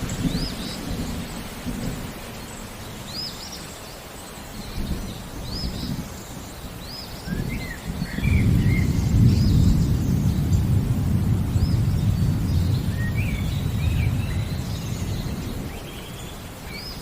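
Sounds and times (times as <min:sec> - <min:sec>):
steady rain: 0:00.0 - 0:17.0
thunder rumbling: 0:07.3 - 0:17.0
bird chirping: 0:11.5 - 0:17.0.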